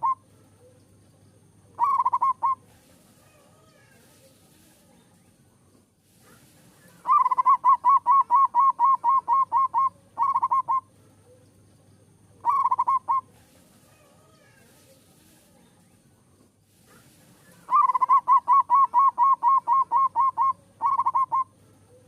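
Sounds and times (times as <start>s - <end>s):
dove cooing: 0.0s - 0.8s, 1.7s - 3.9s, 6.8s - 11.4s, 12.4s - 14.6s, 17.0s - 22.0s.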